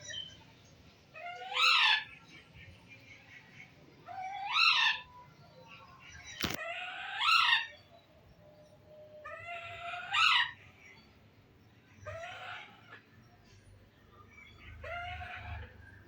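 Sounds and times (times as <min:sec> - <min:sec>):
parrot calling loudly: 0:01.2 - 0:02.1, 0:04.1 - 0:05.1, 0:06.5 - 0:07.8, 0:09.2 - 0:10.6, 0:12.1 - 0:13.0, 0:14.8 - 0:15.7.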